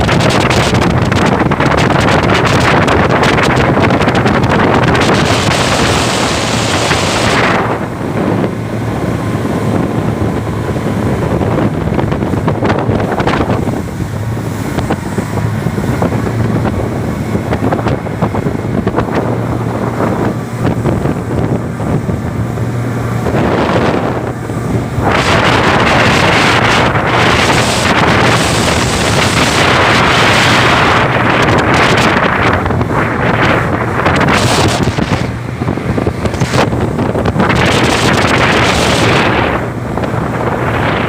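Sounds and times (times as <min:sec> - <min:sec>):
boat engine humming: 0:00.0 - 0:41.0
water rushing: 0:00.0 - 0:41.0
wind on microphone: 0:00.0 - 0:41.0.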